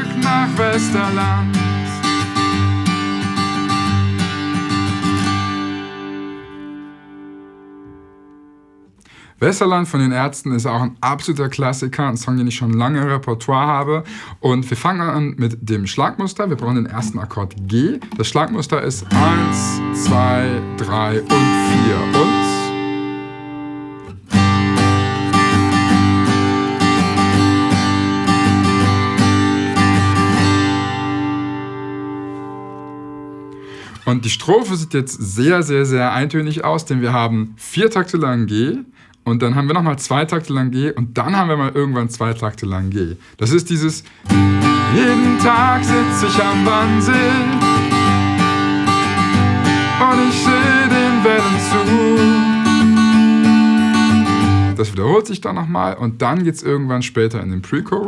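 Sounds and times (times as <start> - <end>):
acoustic guitar strummed: 0.0 - 9.0, 18.0 - 34.4, 44.0 - 54.8.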